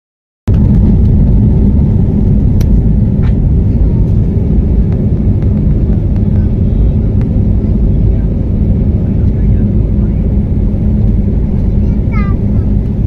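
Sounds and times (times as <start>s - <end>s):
plane cabin rumble: 0.5s - 13.0s.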